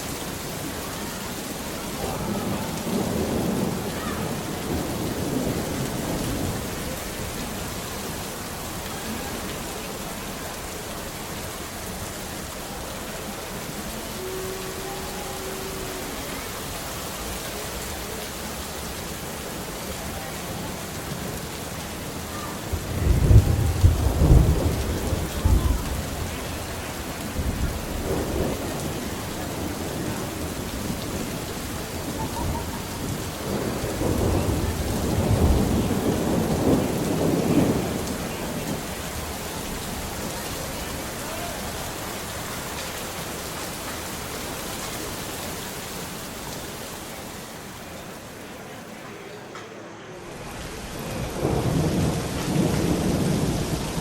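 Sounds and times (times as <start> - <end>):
steady rain: 0.0 - 54.0
thunder rumbling: 0.2 - 10.5, 19.7 - 42.8, 50.7 - 54.0.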